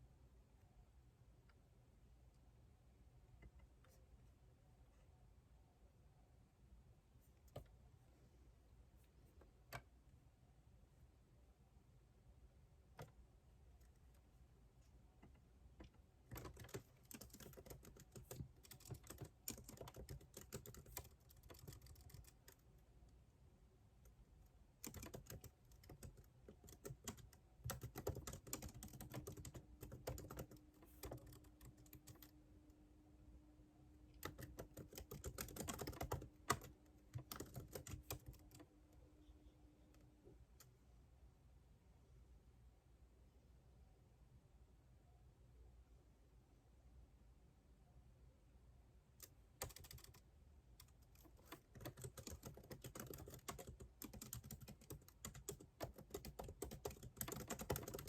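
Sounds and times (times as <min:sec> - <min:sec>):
computer keyboard typing: 0:15.8 - 0:22.9, 0:24.8 - 0:32.4, 0:34.1 - 0:38.7, 0:49.2 - 0:50.2, 0:50.8 - 0:58.0.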